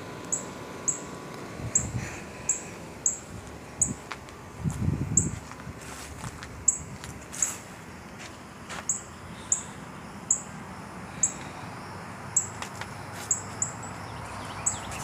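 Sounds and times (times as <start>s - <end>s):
light outdoor background noise: 0.0s - 15.0s
small bird chirping: 0.3s - 1.1s, 8.9s - 10.5s, 13.2s - 15.0s.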